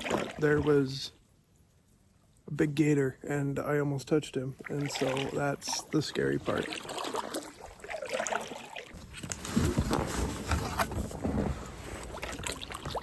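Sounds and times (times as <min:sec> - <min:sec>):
kayak paddle splashing: 0:00.0 - 0:00.4, 0:04.6 - 0:09.0.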